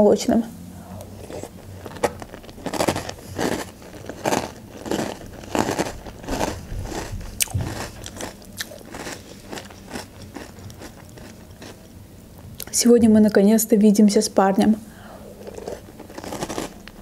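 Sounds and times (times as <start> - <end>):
crunchy chewing of cereal: 1.0 - 11.9, 15.2 - 17.0.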